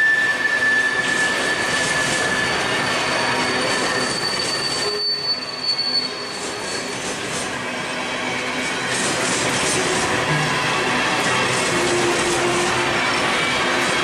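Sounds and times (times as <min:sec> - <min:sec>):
thin high wheel squeal: 0:00.0 - 0:07.5
steel wheels rolling on rail: 0:00.0 - 0:14.0.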